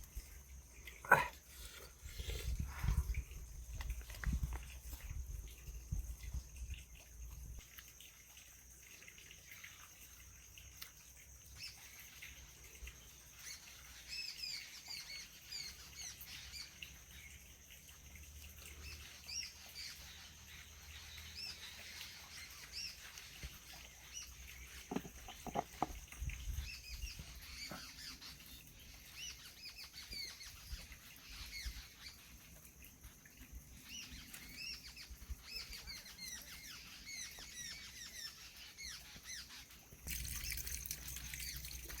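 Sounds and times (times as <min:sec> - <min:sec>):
birds chirping: 0:18.9 - 0:32.6.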